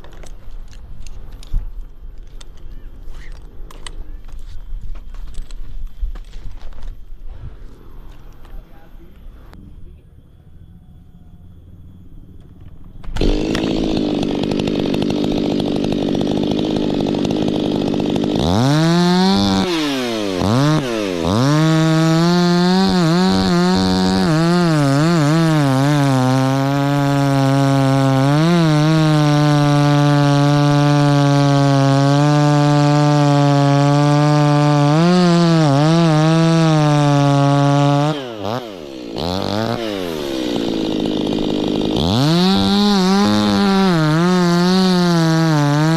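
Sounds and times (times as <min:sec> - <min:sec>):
chainsaw idling and revving: 0:13.0 - 0:45.9.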